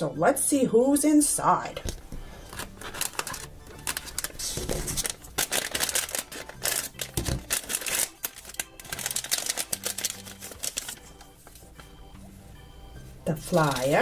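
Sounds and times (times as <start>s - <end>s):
foil packet crinkling: 1.9s - 12.0s, 13.4s - 14.0s.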